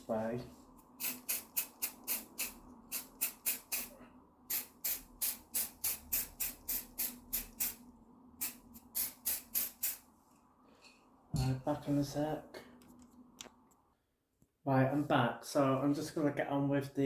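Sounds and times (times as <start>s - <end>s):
spray paint can hissing bursts: 1.0s - 3.9s, 4.5s - 7.8s, 8.4s - 10.0s.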